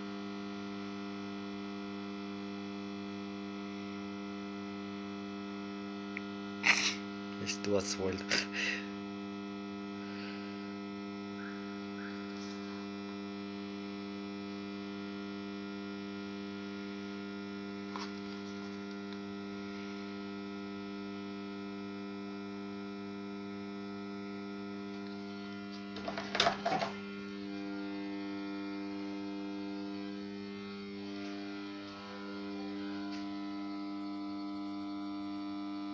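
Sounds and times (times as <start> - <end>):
electrical hum: 0.0 - 35.9.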